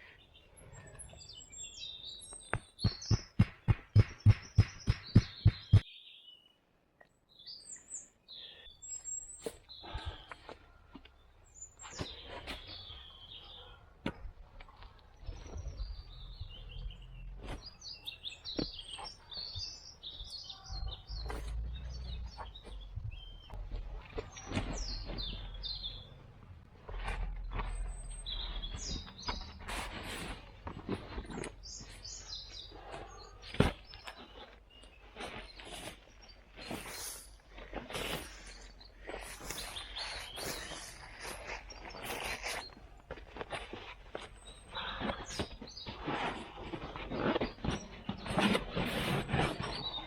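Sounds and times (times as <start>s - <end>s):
small birds chirping: 0.0s - 50.0s
loud sharp knocks: 2.8s - 5.8s.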